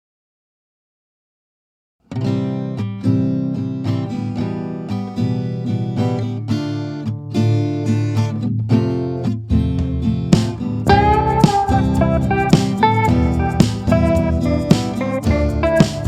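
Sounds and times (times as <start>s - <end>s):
acoustic guitar plucked and strummed: 2.0s - 16.0s.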